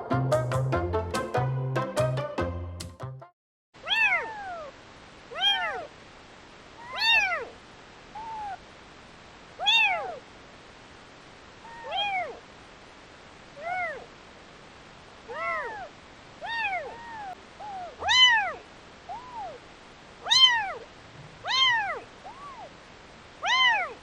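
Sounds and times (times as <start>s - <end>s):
background music: 0.0s - 3.3s
kitten meowing: 3.8s - 4.7s, 5.3s - 5.9s, 6.8s - 7.5s, 8.2s - 8.6s, 9.6s - 10.2s, 11.6s - 12.4s, 13.6s - 14.1s, 15.3s - 19.6s, 20.2s - 22.7s, 23.4s - 24.0s.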